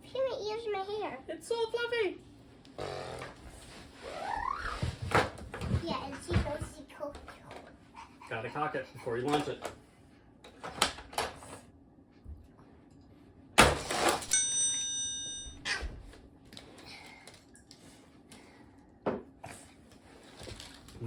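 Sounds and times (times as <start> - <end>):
brief ringing tone: 14.3 - 15.7.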